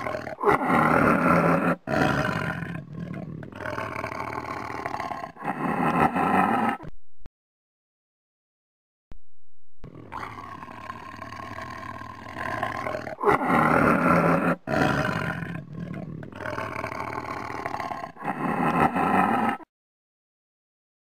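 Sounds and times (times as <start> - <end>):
tiger growling and roaring: 0.0 - 6.9, 9.8 - 19.7.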